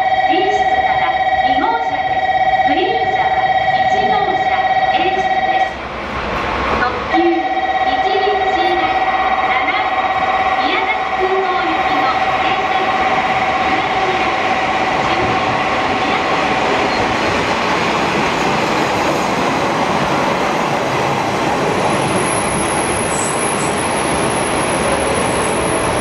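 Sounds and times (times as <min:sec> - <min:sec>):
diesel train engine and wheels: 0:00.0 - 0:26.0
high brake squeals: 0:22.3 - 0:26.0.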